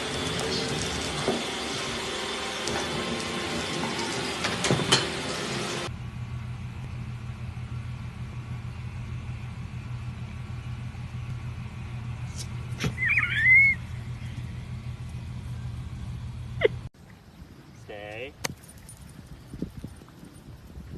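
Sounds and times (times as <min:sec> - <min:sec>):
high wavering squeal: 0:12.8 - 0:14.4.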